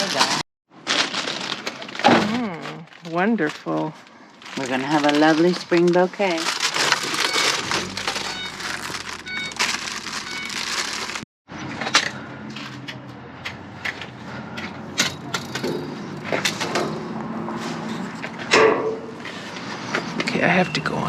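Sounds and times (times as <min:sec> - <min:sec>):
plastic bags crinkling: 0:00.0 - 0:11.2
items knocking and clicking: 0:04.5 - 0:17.3.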